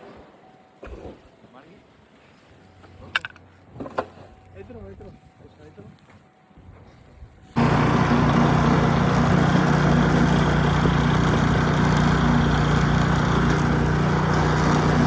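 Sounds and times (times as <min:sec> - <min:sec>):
small engine running: 0:07.6 - 0:15.0.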